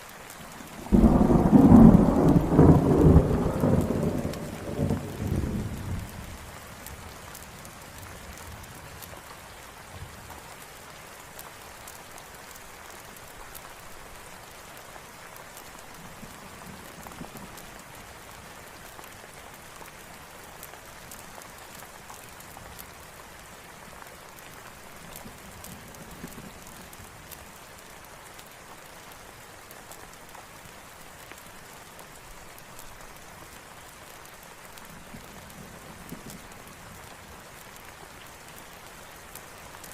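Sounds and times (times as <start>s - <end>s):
rain falling: 0.0s - 39.9s
thunder rumble: 0.8s - 6.4s.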